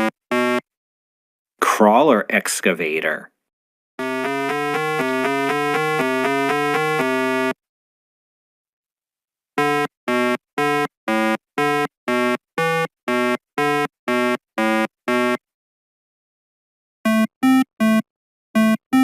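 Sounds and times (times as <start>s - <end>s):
synthesizer music: 4.0s - 7.6s.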